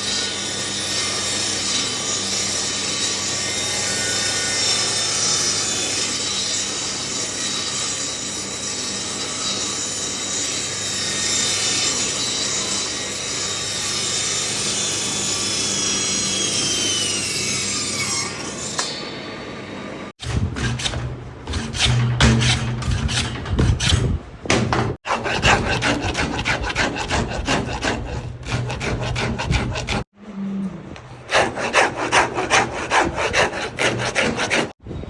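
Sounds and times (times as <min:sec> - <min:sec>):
rasping on wood: 0:20.2 - 0:24.2, 0:24.9 - 0:30.1, 0:31.0 - 0:34.8.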